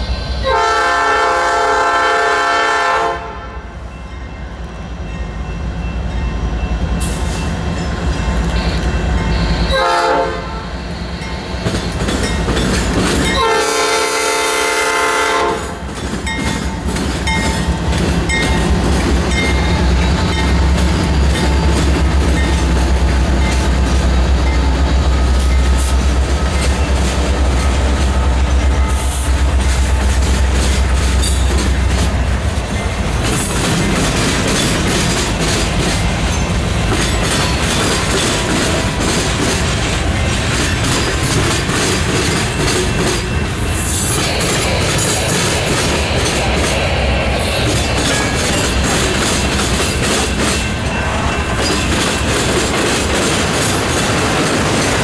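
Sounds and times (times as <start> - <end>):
train passing with rumble: 0.0 - 55.0
locomotive air horn blasts: 0.1 - 3.8, 8.6 - 10.9, 13.4 - 15.8
wheel clatter over rail joints: 11.6 - 13.4, 29.4 - 55.0.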